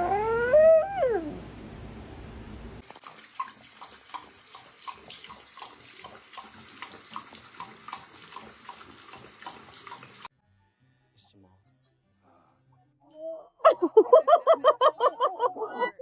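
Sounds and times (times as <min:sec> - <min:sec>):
tap water running: 0:02.8 - 0:10.3.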